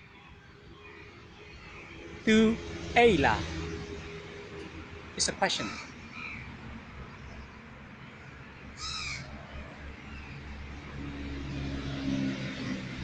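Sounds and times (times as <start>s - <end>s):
crow-like bird call: 5.6s - 6.5s, 8.8s - 9.7s.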